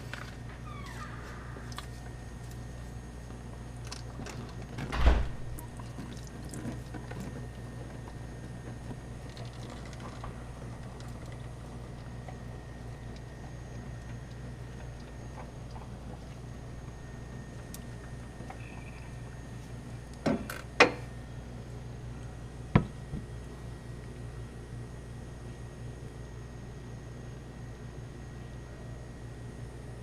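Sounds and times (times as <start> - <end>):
steady low hum: 0.0 - 30.0
loud thump: 4.9 - 5.5.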